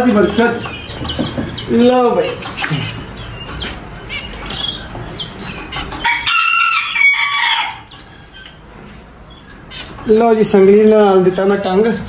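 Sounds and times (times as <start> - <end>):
small birds chirping: 0.0 - 12.0
rooster crowing: 6.0 - 7.9.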